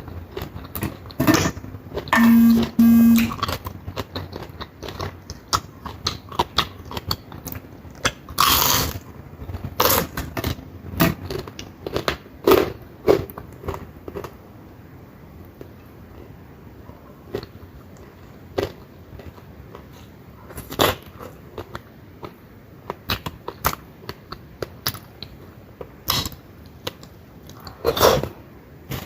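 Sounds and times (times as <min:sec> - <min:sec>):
chewing and crunching fried fish: 0:00.0 - 0:02.1, 0:03.4 - 0:14.6, 0:15.5 - 0:29.0
short loud beeps: 0:02.2 - 0:03.4.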